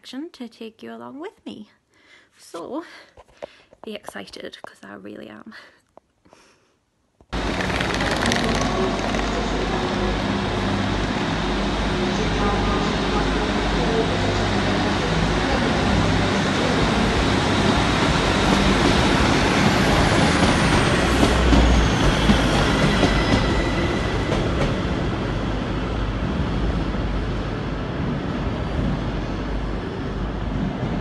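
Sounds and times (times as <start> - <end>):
passenger train rumbling: 7.4 - 31.0.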